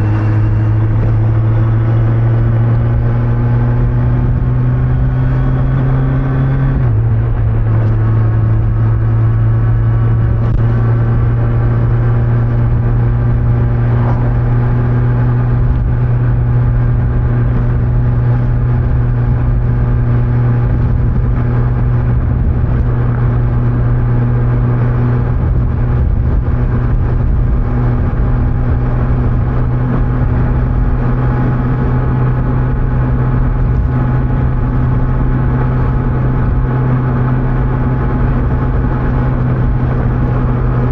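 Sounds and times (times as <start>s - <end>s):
motorbike engine cruising: 0.0s - 40.9s
wind and road noise: 0.0s - 40.9s.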